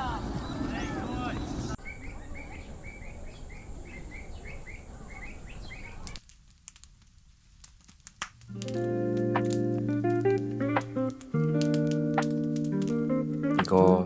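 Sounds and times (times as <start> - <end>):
outdoor background noise: 0.0 - 14.0
bird chirping: 0.2 - 6.2
sharp crackles: 5.4 - 14.0
music: 8.5 - 14.0.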